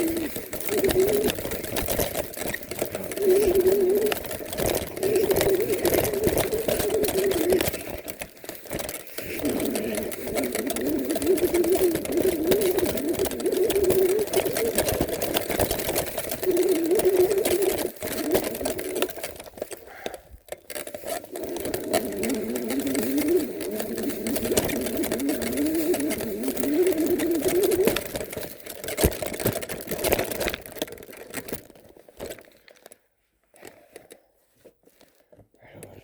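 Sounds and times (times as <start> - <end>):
electric bike motor whining: 0.0 - 19.2, 20.8 - 29.1
tyre noise: 0.0 - 32.1.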